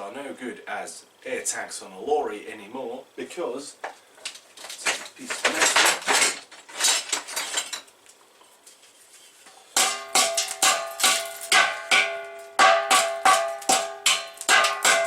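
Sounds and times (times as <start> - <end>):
hammer blows on steel tank: 9.8 - 15.0.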